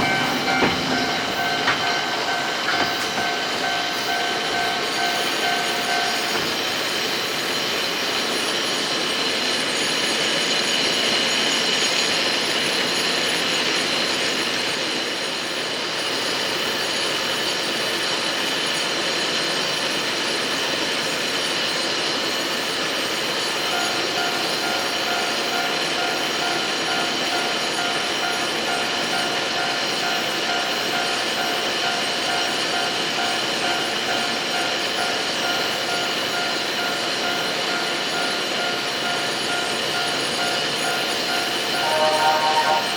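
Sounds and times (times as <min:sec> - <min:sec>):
funicular car rolling on rails: 0:00.0 - 0:07.7
high two-note tone: 0:41.7 - 0:42.9.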